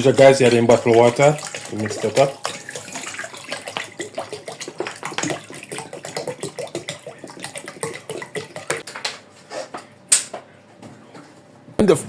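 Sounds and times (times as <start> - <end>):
water pouring and splashing: 0.0 - 8.9.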